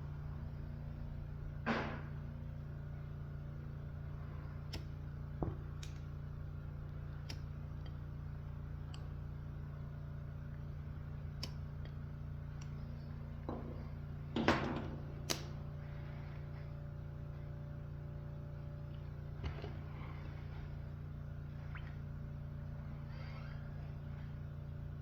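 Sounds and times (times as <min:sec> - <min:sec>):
steady low hum: 0:00.0 - 0:25.0
clicks from handling objects: 0:15.2 - 0:15.6.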